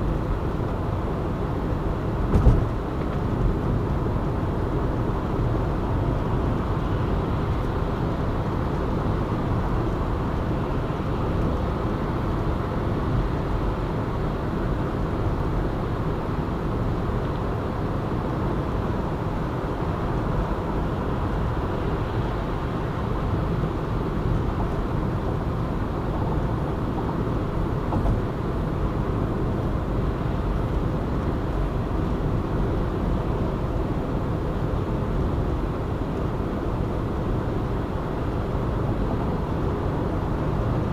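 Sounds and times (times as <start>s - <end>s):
car tyre and engine noise: 0.0s - 40.9s
brief knock: 2.3s - 2.7s.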